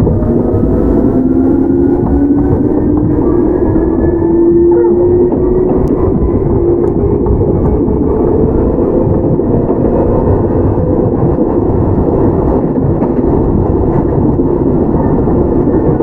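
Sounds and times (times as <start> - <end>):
electric train rumble inside car: 0.0 - 16.0.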